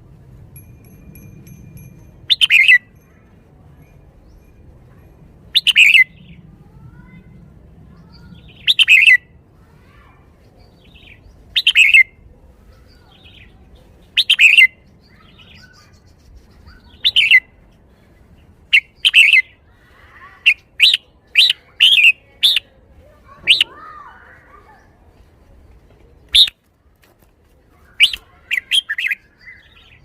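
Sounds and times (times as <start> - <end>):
bulbul singing short phrases: 23.4 - 23.8.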